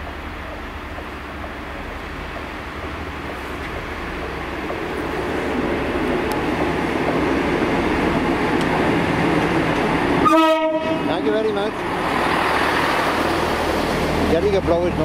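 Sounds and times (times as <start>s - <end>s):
train engine and wheel noise: 0.0s - 15.0s
train horn: 10.2s - 11.2s.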